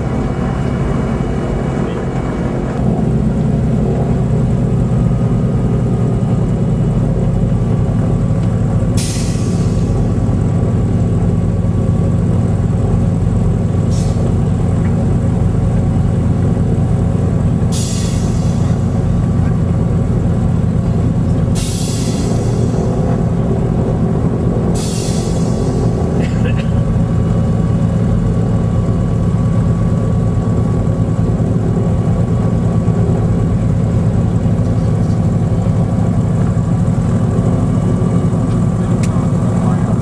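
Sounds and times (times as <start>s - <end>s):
piston engines droning: 0.0s - 40.0s.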